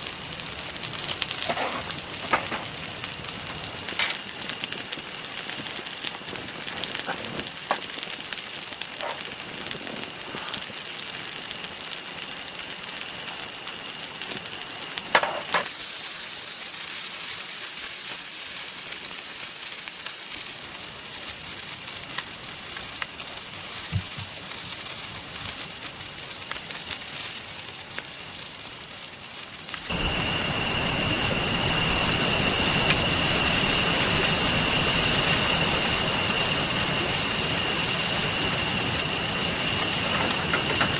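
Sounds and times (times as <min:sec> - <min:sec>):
campfire crackling and popping: 0:00.0 - 0:40.9
steady rain: 0:00.0 - 0:40.9.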